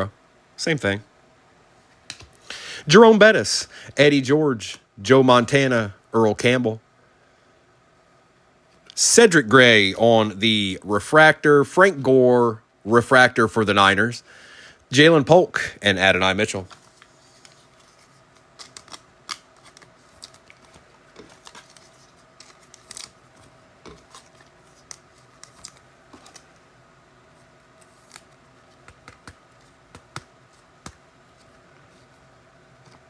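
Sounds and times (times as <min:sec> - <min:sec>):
cards and foil packs rustling: 0:16.5 - 0:26.6, 0:27.8 - 0:32.1.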